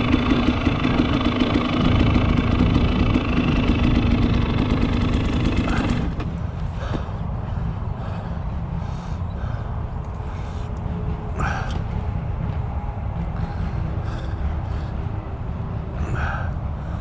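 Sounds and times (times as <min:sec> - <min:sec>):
two-stroke engine running: 0:00.0 - 0:07.3
heavy breathing: 0:05.3 - 0:12.6, 0:13.2 - 0:17.0.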